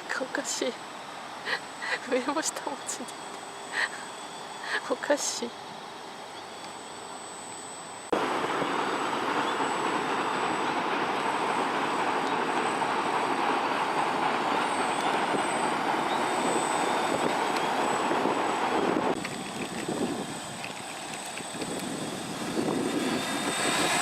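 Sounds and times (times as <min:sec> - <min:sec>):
quadcopter propellers whirring: 0:00.0 - 0:24.0.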